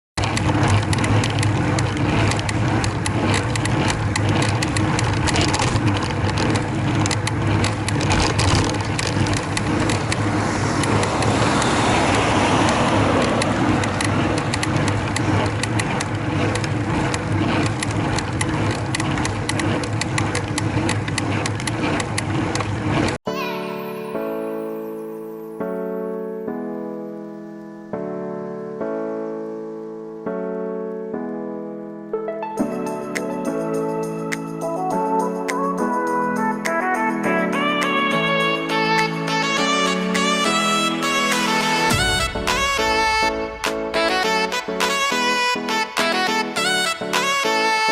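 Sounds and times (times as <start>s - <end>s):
bicycle creaking and clicking: 0.2s - 23.2s, 32.6s - 47.9s
road noise: 0.2s - 23.2s, 37.8s - 47.9s
wind noise: 2.0s - 16.4s.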